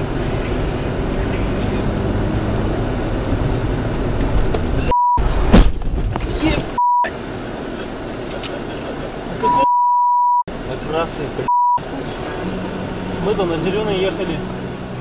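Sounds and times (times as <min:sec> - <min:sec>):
vehicle and road noise: 0:00.0 - 0:15.0
censor bleep: 0:04.9 - 0:05.2, 0:06.8 - 0:07.1, 0:09.5 - 0:10.4, 0:11.5 - 0:11.8.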